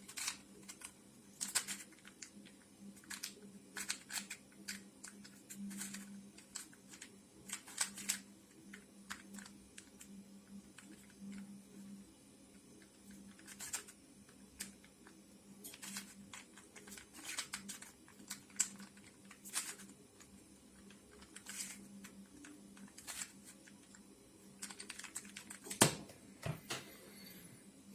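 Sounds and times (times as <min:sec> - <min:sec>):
steady low hum: 0:00.0 - 0:27.9
plastic puzzle pieces clicking: 0:00.1 - 0:10.1, 0:15.7 - 0:19.9, 0:20.8 - 0:23.8, 0:24.6 - 0:25.8.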